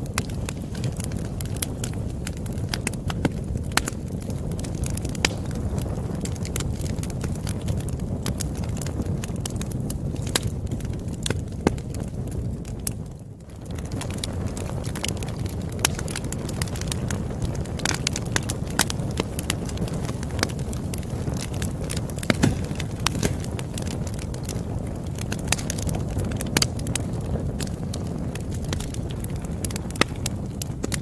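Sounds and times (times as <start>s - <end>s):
burning wood crackles and pops: 0.0s - 31.0s
low rumble of campfire: 0.0s - 31.0s.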